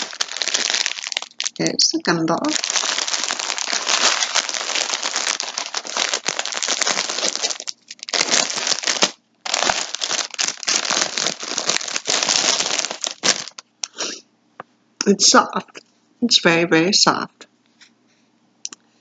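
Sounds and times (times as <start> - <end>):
plastic packaging crinkling: 0.0 - 1.8, 2.4 - 13.7.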